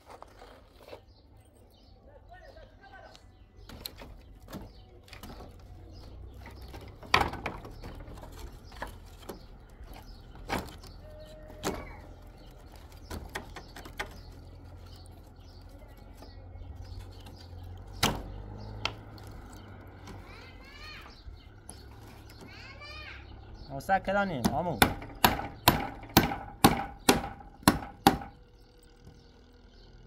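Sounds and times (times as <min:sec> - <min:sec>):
objects knocking and clattering: 0:03.6 - 0:10.9.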